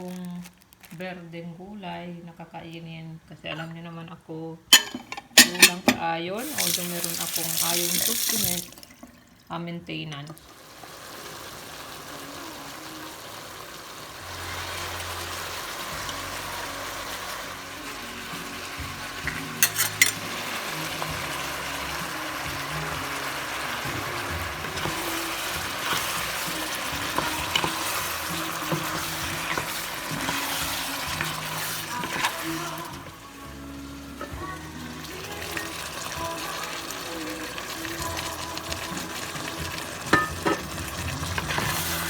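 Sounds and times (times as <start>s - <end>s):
chicken frying in hot oil: 10.5s - 33.0s
utensil clinking against pan: 19.6s - 20.2s, 40.1s - 40.8s.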